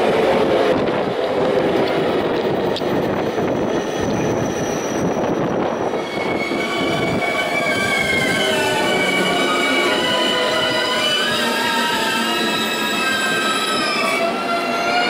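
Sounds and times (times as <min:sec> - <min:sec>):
train wheels rumbling on rail: 0:00.0 - 0:15.0
high multi-tone squeal: 0:03.0 - 0:15.0.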